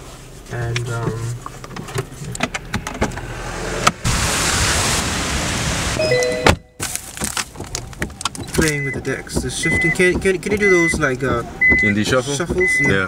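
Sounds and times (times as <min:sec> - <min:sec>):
heavy rain hissing: 0:04.0 - 0:06.0
brief electronic tone: 0:06.0 - 0:06.8.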